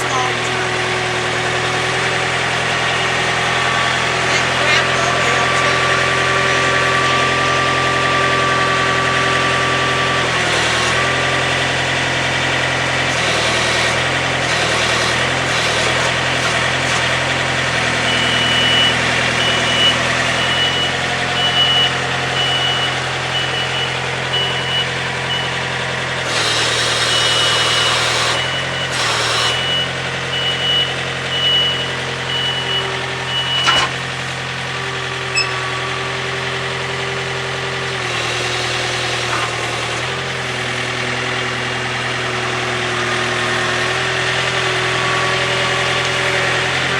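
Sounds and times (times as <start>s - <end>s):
engine idling: 0.0s - 46.9s
high beep: 18.1s - 25.6s, 29.5s - 33.9s, 35.3s - 35.6s.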